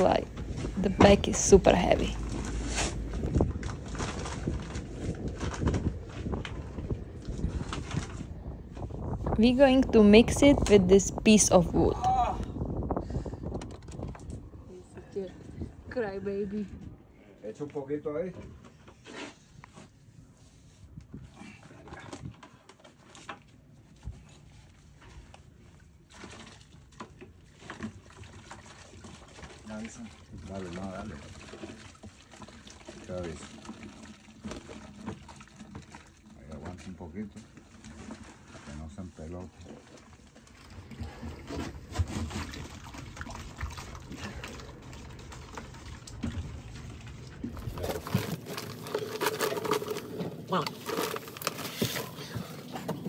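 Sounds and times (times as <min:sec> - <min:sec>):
wet adhesive scraping and sloshing: 0:00.0 - 0:08.3, 0:26.1 - 0:53.0.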